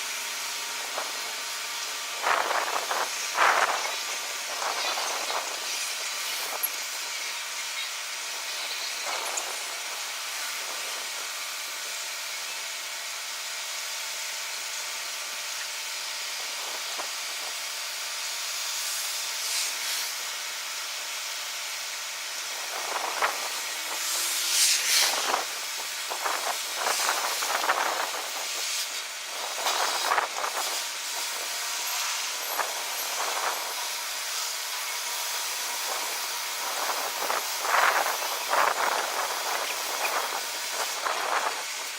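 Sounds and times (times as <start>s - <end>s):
snowstorm wind gusting: 2.2s - 7.2s, 22.5s - 28.6s, 29.2s - 31.6s, 32.2s - 33.8s, 35.6s - 41.9s.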